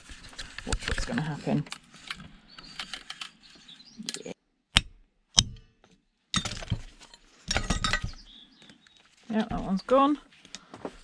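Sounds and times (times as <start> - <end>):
metal knocks and clinks: 6.3 - 8.3.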